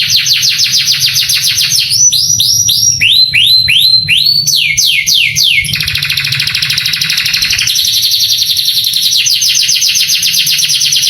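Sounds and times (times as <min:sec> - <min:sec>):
canary singing trills: 0:00.0 - 0:11.0
low steady hum: 0:00.9 - 0:08.4.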